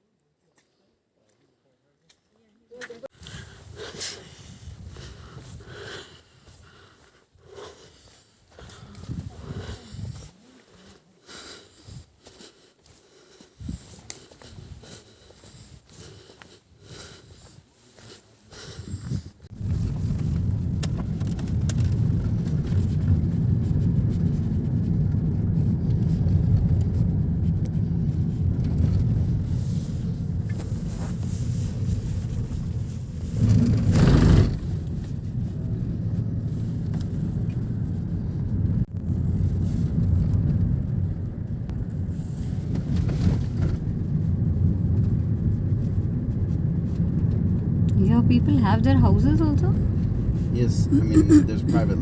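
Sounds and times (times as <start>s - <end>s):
car cabin rumble: 19.5s - 52.0s.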